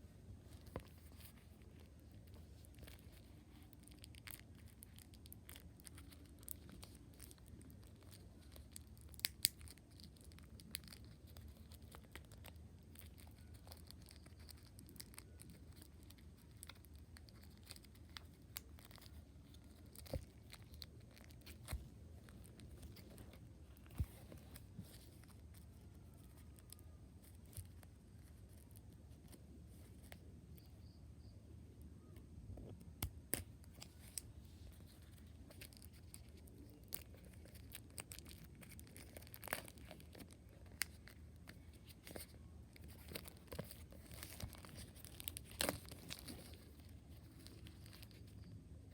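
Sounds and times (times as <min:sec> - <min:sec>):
faint low hum: 0:00.0 - 0:48.9
cardboard and plastic crinkling: 0:00.4 - 0:30.1, 0:33.4 - 0:48.9.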